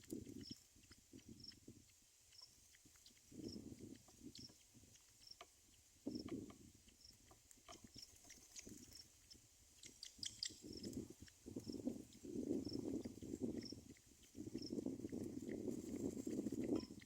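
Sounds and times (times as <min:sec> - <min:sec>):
high bird chirps: 0:09.8 - 0:10.9.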